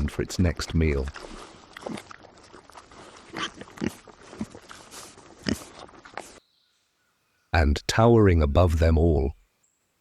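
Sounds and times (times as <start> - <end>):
hog grunting: 3.4 - 6.0.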